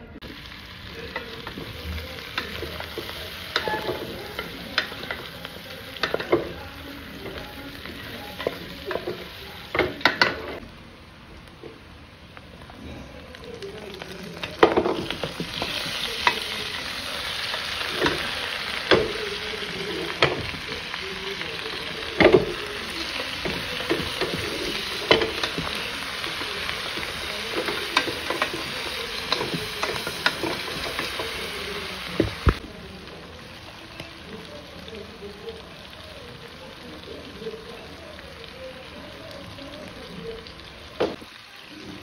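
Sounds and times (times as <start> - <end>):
meat sizzling in hot fat: 0.2 - 42.0
wooden spoon knocking pot: 22.2 - 31.4.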